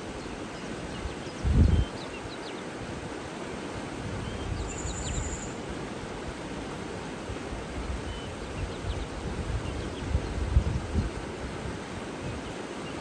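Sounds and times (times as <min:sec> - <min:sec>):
running water: 0:00.0 - 0:13.0
low wind rumble: 0:00.8 - 0:02.0, 0:03.8 - 0:12.6
faint bird chirps: 0:04.2 - 0:05.6.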